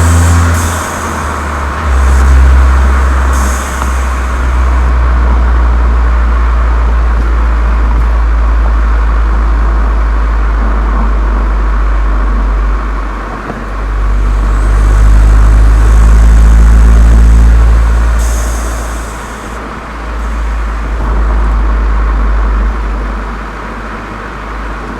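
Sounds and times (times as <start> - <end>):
car exhaust deep drone: 0.0 - 24.9.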